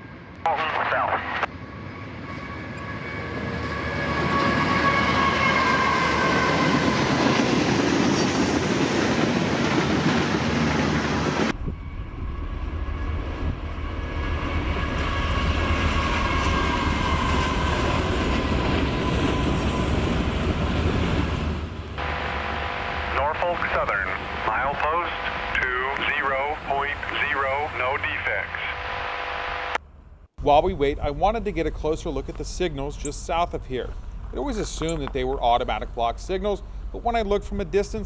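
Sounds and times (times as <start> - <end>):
train cars rumbling over rails: 1.5 - 29.1.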